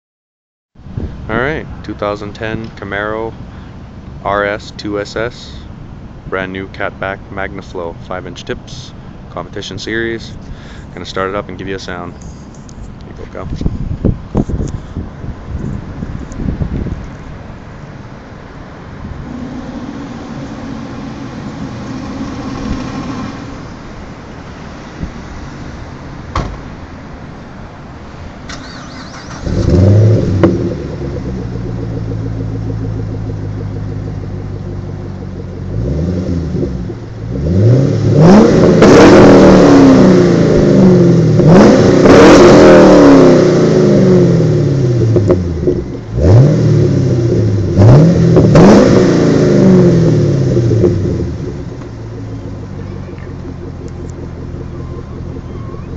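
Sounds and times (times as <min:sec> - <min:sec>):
car engine starting and idling: 0:00.8 - 0:55.9
car engine revving: 0:15.5 - 0:55.9.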